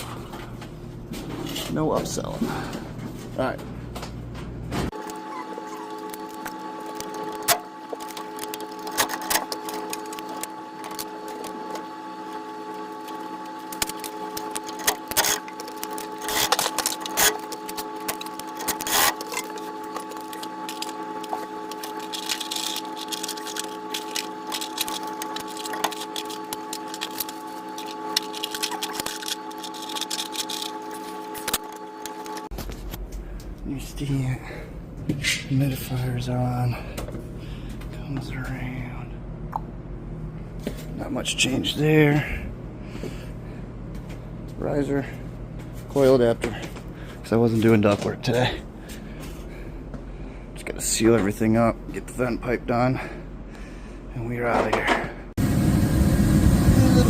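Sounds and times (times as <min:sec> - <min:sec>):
steady mechanical hum: 0:00.0 - 0:57.0.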